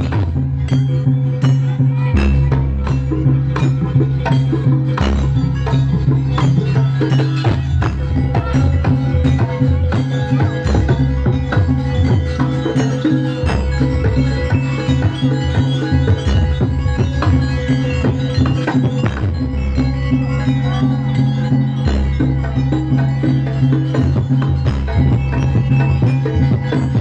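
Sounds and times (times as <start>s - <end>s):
drum strokes: 0.0s - 27.0s
percussion ensemble music: 0.0s - 27.0s
ringing metallic tones: 0.0s - 27.0s.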